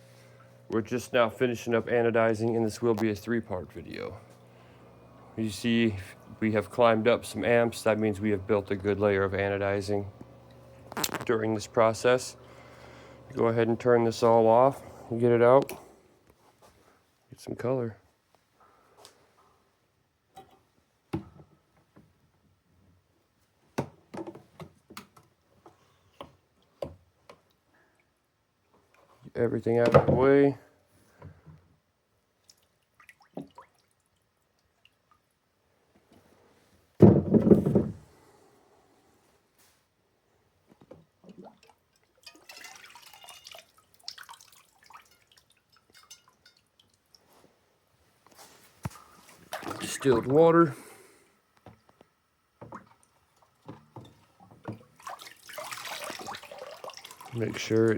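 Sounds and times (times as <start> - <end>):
water dripping and trickling: 32.4 - 35.3, 41.2 - 47.3, 52.6 - 57.9.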